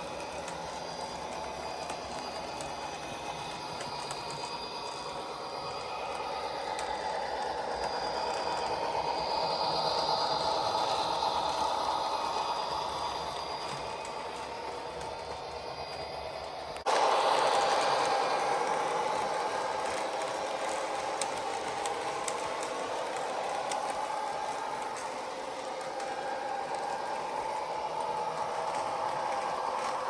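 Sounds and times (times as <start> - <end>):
model train rattling on track: 0.0 - 30.0.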